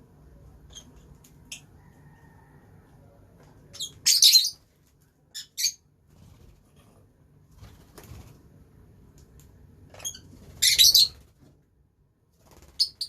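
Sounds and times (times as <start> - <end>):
lovebirds chirping: 0.6 - 1.8, 3.6 - 4.6, 9.9 - 11.2.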